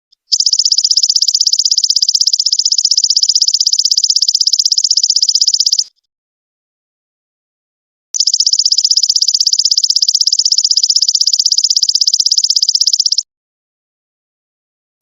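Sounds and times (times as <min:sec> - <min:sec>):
insect high-pitched pulsing buzz: 0:00.3 - 0:05.9, 0:08.2 - 0:13.2.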